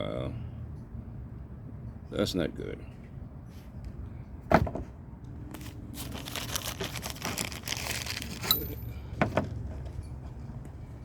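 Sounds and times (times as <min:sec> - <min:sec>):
air filter crinkling and rustling: 0:04.6 - 0:08.6.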